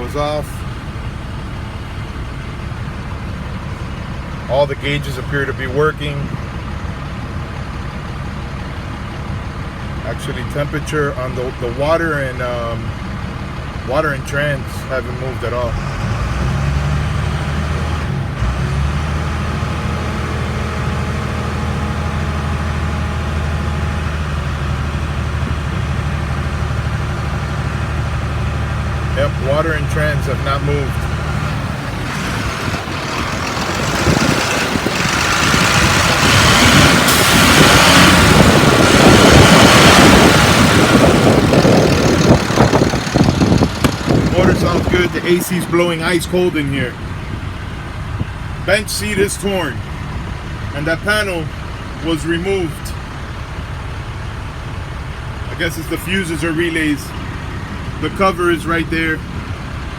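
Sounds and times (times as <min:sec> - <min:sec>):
diesel engine idling: 0:00.0 - 0:59.9
engine knock: 0:27.9 - 0:37.2, 0:38.0 - 0:45.4.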